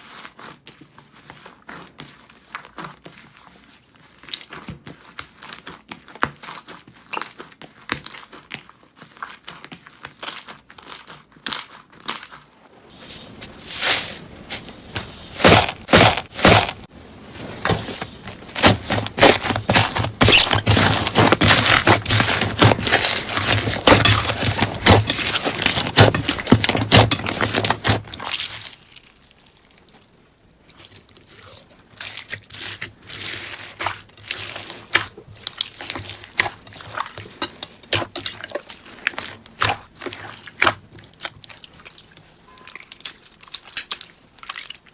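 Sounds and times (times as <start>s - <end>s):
slime crackling and popping: 18.0s - 44.9s.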